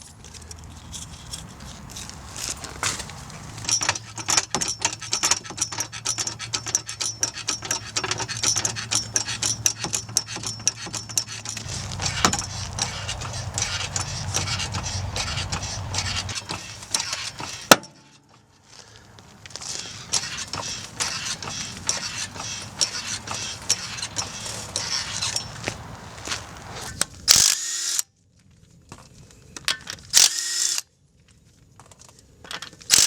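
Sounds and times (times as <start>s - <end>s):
hand tools clicking and scraping: 0.0s - 27.5s
low steady hum: 11.6s - 17.7s.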